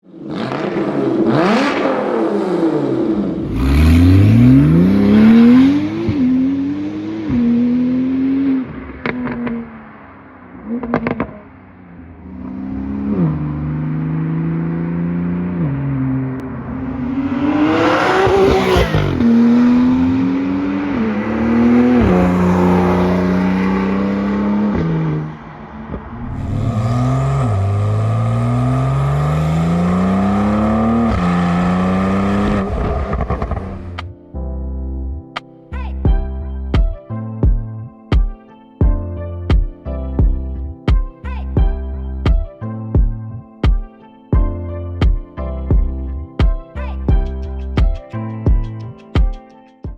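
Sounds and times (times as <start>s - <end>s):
car engine accelerating: 0.1s - 34.1s.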